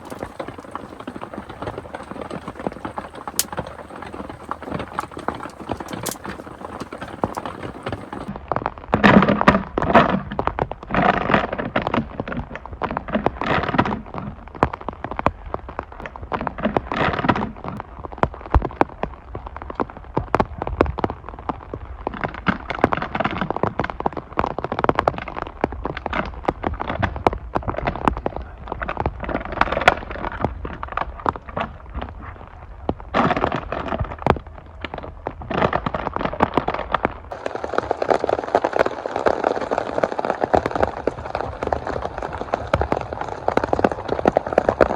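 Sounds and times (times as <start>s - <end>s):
steady hiss: 0.0s - 8.3s
wood fire crackling and popping: 0.0s - 8.3s, 33.3s - 44.9s.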